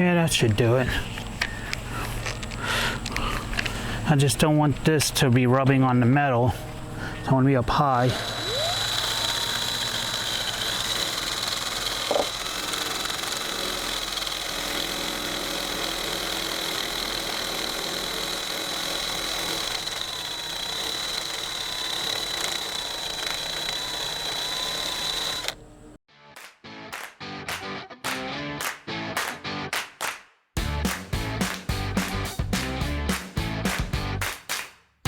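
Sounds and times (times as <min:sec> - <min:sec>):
rotary tool grinding metal: 0:06.6 - 0:26.0.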